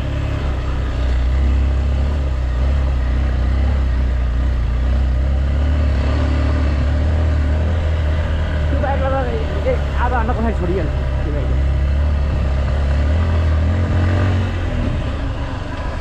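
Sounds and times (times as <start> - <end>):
road noise: 0.0 - 16.0
vehicle engine drone: 0.0 - 16.0.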